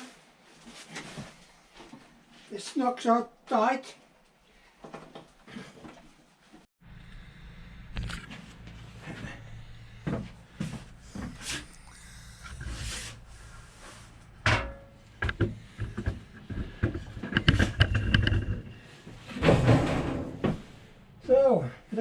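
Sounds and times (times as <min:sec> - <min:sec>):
handling noise on metal parts: 0:13.1 - 0:21.1
metal clank: 0:14.4 - 0:15.4, 0:19.3 - 0:20.8
clattering with metallic ring: 0:14.5 - 0:15.1.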